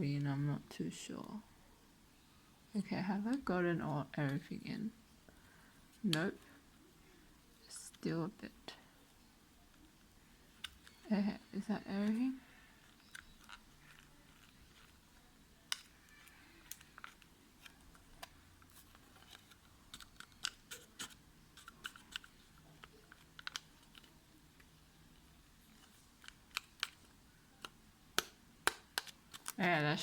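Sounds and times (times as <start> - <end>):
small packet crinkling and tapping: 9.6 - 11.3, 12.0 - 30.0.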